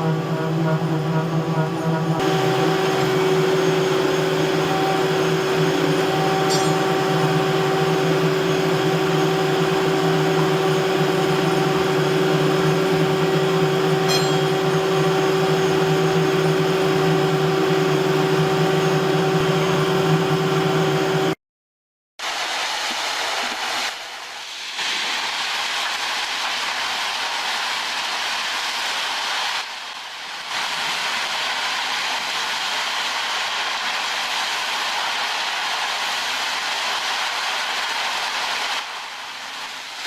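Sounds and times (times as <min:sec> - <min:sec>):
machine humming steadily: 0:00.0 - 0:21.4.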